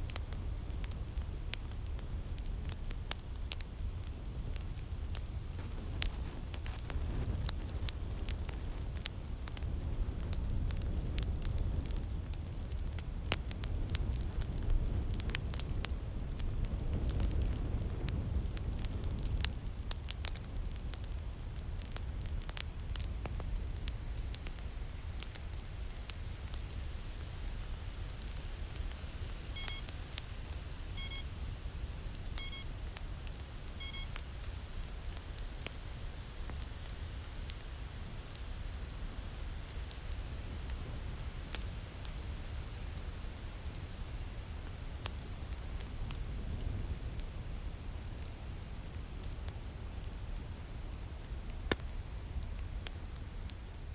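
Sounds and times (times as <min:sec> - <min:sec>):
fire crackling: 0:00.0 - 0:53.9
winter wind: 0:00.0 - 0:53.9
timer alarm ringing tones: 0:29.6 - 0:29.8, 0:31.0 - 0:31.2, 0:32.4 - 0:32.7, 0:33.8 - 0:34.1.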